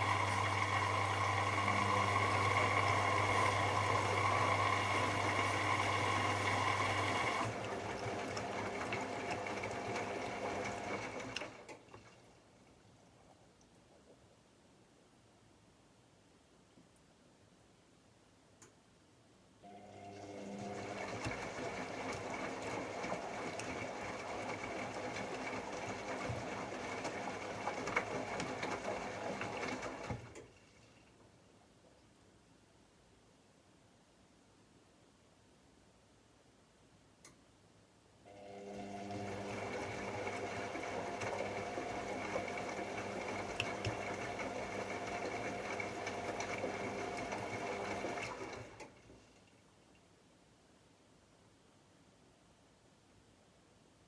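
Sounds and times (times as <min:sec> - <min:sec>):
washing machine motor whine: 0:00.0 - 0:11.4, 0:19.8 - 0:30.2, 0:38.3 - 0:48.8.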